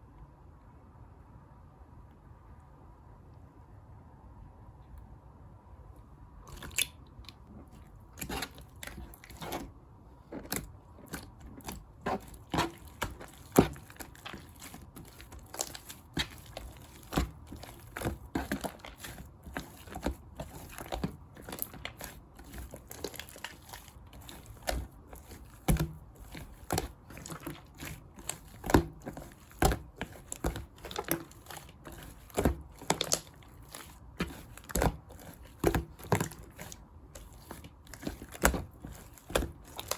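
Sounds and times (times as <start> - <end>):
slime clicking and crackling: 6.5 - 9.7, 10.3 - 39.9.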